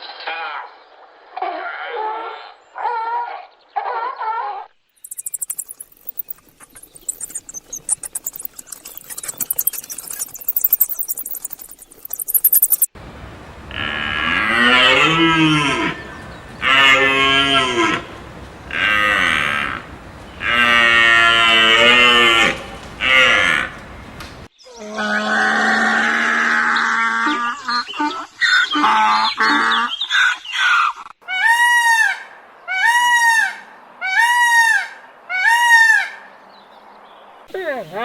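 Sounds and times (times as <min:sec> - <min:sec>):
dense crackling and clicking: 0:05.0 - 0:13.0, 0:22.6 - 0:23.1
cattle mooing: 0:13.7 - 0:23.9.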